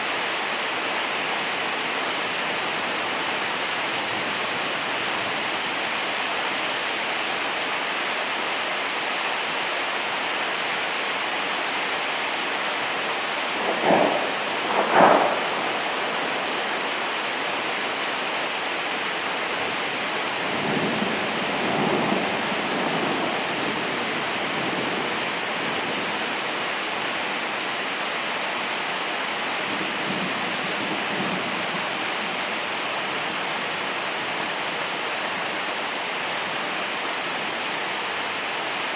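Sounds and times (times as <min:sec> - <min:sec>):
steady rain falling: 0:00.0 - 0:38.9
thunder rumbling: 0:13.0 - 0:18.3, 0:19.7 - 0:26.0.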